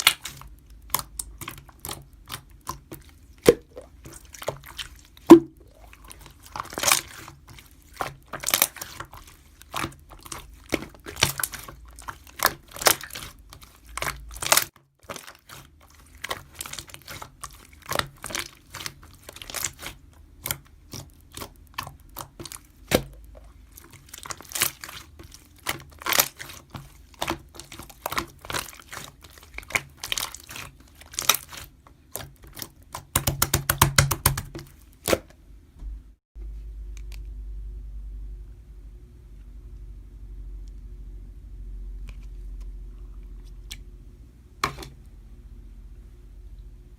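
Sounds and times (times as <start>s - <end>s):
faint low hum: 35.4s - 46.9s.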